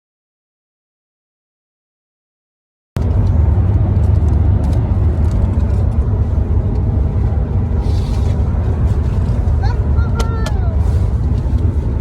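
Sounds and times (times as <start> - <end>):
road rumble inside truck cab: 3.0 - 12.0.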